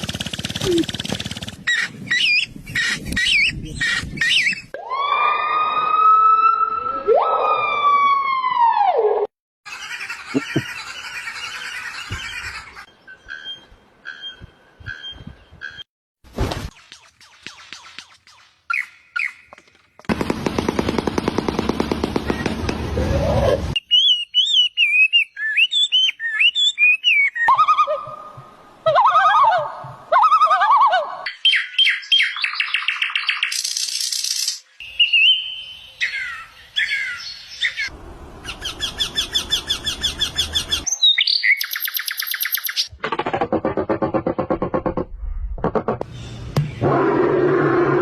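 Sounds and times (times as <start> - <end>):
loud fast bird rattle: 0.0 - 1.8
warbling whistled birdsong: 1.6 - 4.8, 10.6 - 15.9, 16.8 - 19.6, 22.3 - 27.9, 31.3 - 42.9
bird chirps: 10.3 - 15.9, 16.8 - 19.7, 23.8 - 27.9, 31.3 - 42.9.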